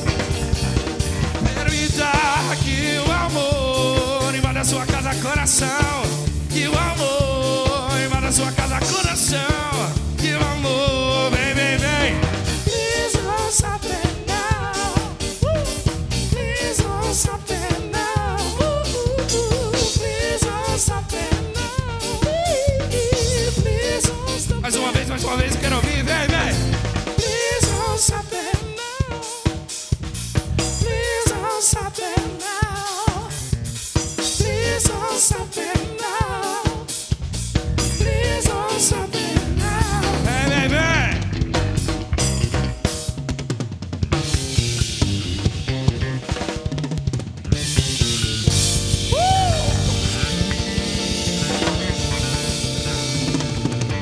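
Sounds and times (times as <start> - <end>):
wavering melodic lead: 0.0 - 3.5, 48.4 - 54.0
bass line: 0.0 - 28.3, 30.0 - 31.4, 33.3 - 35.3, 37.1 - 43.4, 44.0 - 54.0
band playing instrumental: 0.0 - 54.0
drum kit beat: 0.0 - 54.0.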